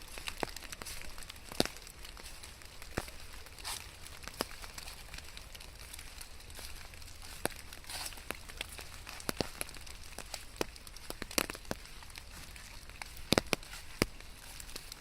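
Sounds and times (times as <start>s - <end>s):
rain with large drops tapping: 0.0s - 15.0s.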